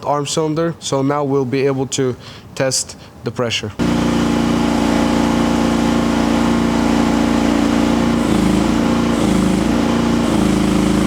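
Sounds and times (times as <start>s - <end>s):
excavator engine running: 3.8s - 11.0s.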